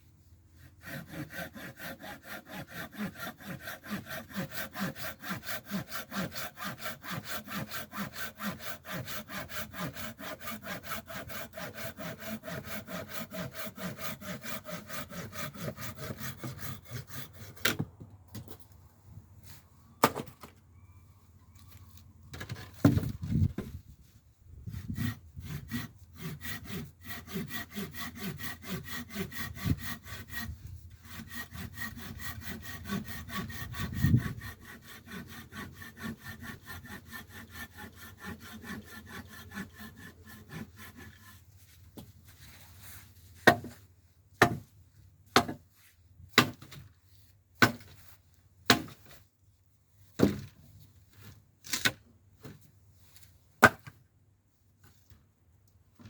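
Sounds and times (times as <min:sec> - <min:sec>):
saw cutting wood: 0:00.6 - 0:17.8, 0:24.7 - 0:42.1.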